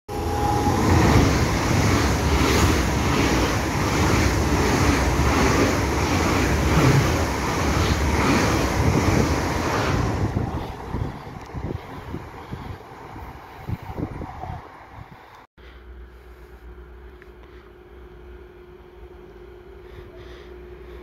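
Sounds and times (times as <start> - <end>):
high-speed train passing: 0.1 - 15.5.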